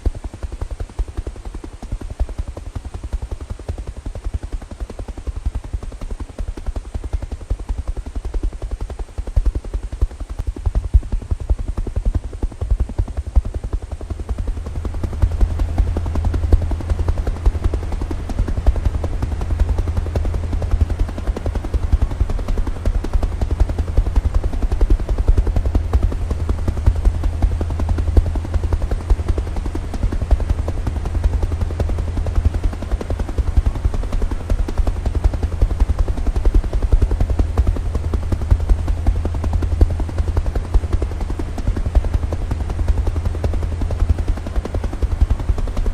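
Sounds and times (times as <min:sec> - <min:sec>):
helicopter rotor chopping: 0:00.0 - 0:45.9
deep engine throb: 0:10.4 - 0:45.9.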